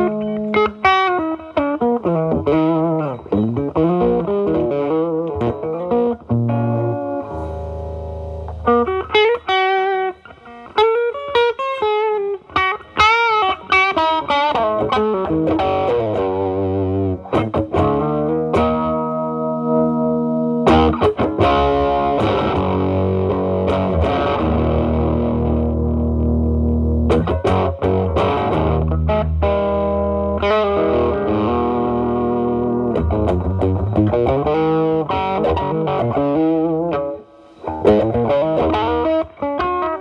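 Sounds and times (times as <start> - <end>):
distorted electric guitar: 0.0 - 40.0.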